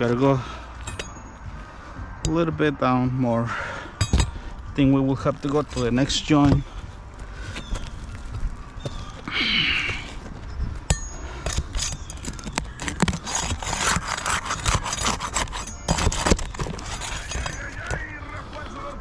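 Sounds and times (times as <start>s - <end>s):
shingles scraping: 11.2s - 19.0s.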